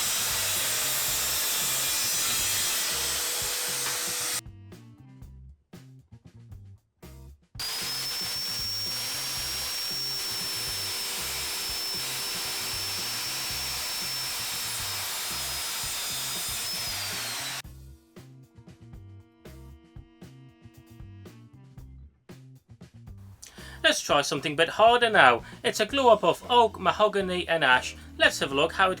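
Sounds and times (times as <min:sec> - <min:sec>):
circular saw cutting wood: 0:00.0 - 0:04.4, 0:07.6 - 0:17.6
background music: 0:00.0 - 0:29.0.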